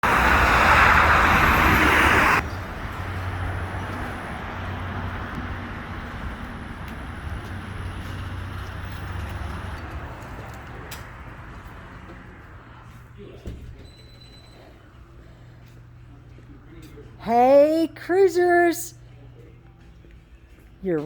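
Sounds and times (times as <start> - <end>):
vehicle engine rumbling: 0.0 - 17.2.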